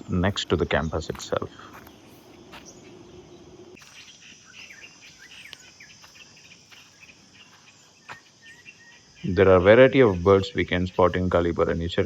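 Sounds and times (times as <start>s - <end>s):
low steady hum: 0.0s - 3.8s
bird chirps: 0.0s - 12.0s
insects buzzing: 0.0s - 12.0s.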